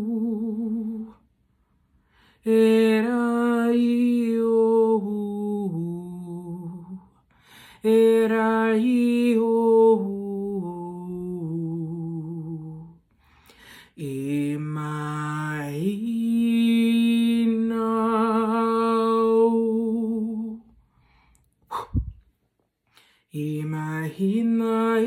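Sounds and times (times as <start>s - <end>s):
woman singing wordlessly: 0.0s - 1.2s, 2.4s - 7.2s, 7.8s - 13.0s, 13.9s - 20.7s, 23.3s - 25.0s.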